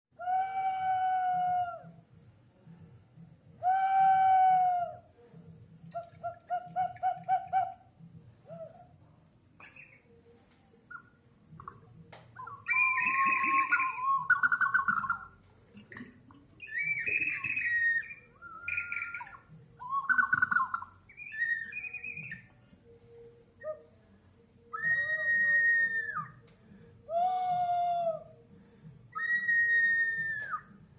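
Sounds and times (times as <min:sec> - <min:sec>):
pot whistles warbling: 0:12.4 - 0:22.5, 0:24.7 - 0:26.4, 0:29.1 - 0:30.8.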